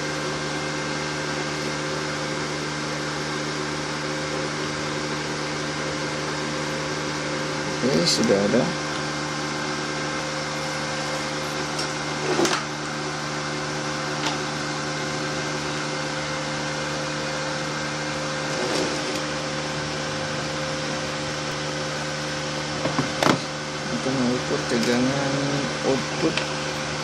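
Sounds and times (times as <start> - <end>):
cooling fan humming: 0.0 - 27.0.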